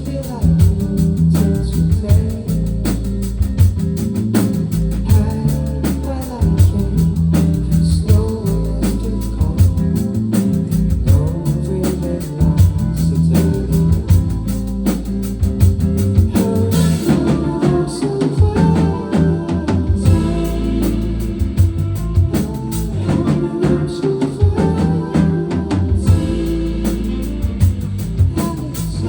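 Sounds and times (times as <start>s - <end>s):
person singing: 0.0s - 3.1s, 5.0s - 15.1s, 16.0s - 29.0s
drum kit beat: 0.0s - 29.0s
band playing: 8.1s - 29.0s.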